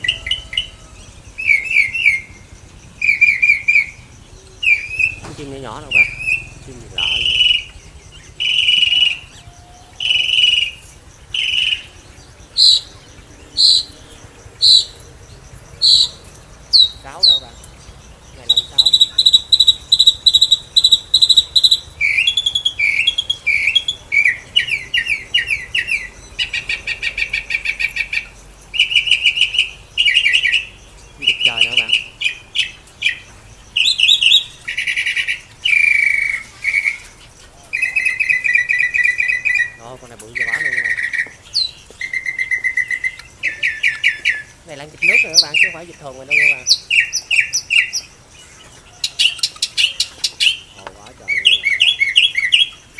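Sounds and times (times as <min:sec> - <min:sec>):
short high-pitched bird calls: 0:00.0 - 0:02.4, 0:03.0 - 0:14.0, 0:15.8 - 0:17.6, 0:18.3 - 0:33.2
harsh buzzy bird calls: 0:00.0 - 0:52.9.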